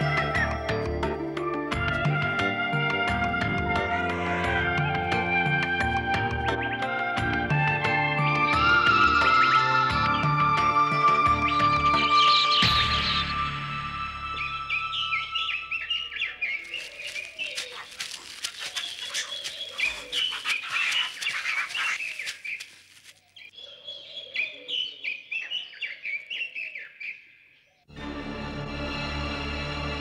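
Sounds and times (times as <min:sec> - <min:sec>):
forest birds chirping: 0:08.2 - 0:28.0
crackles and rustles: 0:16.3 - 0:23.5.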